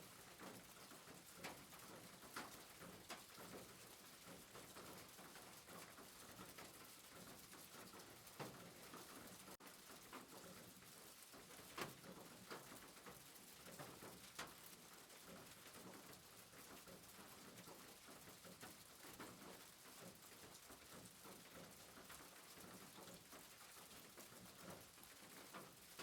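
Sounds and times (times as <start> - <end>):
faint soft rain hiss: 0.0 - 26.0
pattering raindrops: 0.0 - 26.0.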